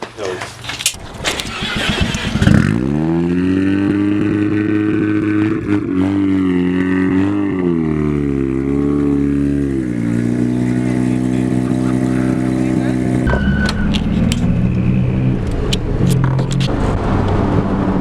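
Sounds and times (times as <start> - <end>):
car engine starting and idling: 0.0 - 3.2, 10.7 - 18.0.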